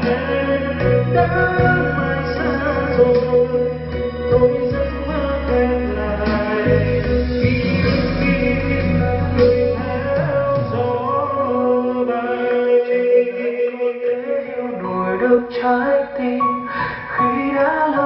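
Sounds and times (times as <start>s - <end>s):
deep bass: 0.0s - 12.4s
song with singing voice: 0.0s - 18.0s.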